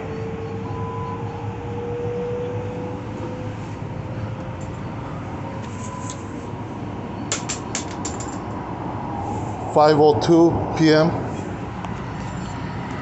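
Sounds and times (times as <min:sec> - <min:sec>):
subway car rolling: 0:00.0 - 0:13.0.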